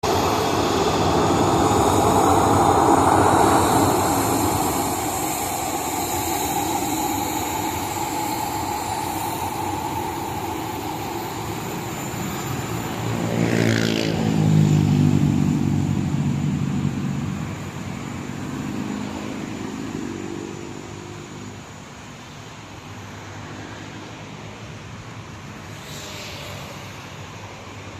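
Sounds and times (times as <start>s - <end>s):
lower pitched engine note: 0.0s - 19.2s
jet engines rumbling with high whine: 0.0s - 27.9s.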